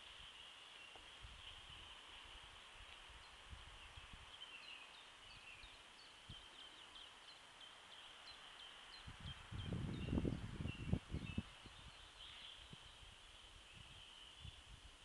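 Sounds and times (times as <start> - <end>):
steady hiss: 0.0 - 9.6
birds chirping: 0.0 - 14.7.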